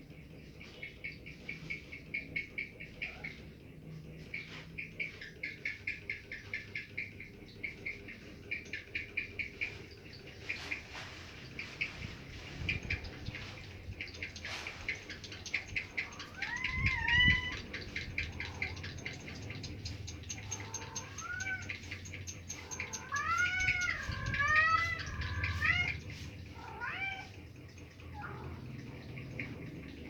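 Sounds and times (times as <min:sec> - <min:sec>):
faint rapid clicks: 0:14.0 - 0:30.0
cat meowing: 0:16.2 - 0:17.6, 0:20.6 - 0:21.7, 0:22.7 - 0:27.4.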